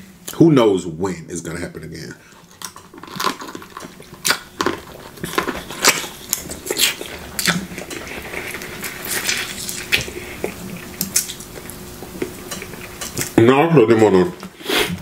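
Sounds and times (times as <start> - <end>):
chewing clicks and smacks: 2.6 - 13.4.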